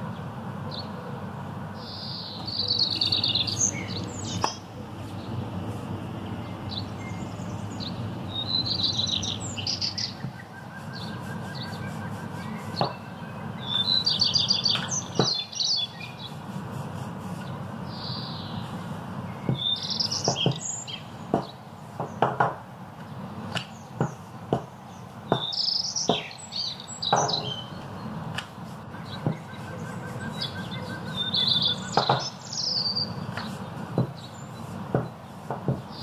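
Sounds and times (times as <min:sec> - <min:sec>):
steady low hum: 0:00.0 - 0:25.4
small birds chirping: 0:00.0 - 0:36.0
light knocks: 0:34.9 - 0:35.9.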